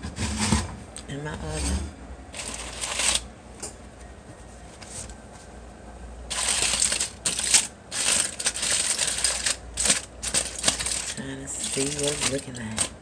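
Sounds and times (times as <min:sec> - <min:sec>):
crinkly rustling: 0:06.3 - 0:13.0.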